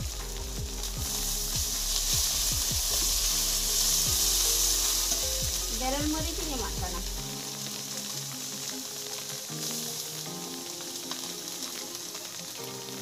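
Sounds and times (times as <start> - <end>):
food sizzling in hot oil: 0.0 - 13.0
spatula stirring in wok: 0.2 - 6.5.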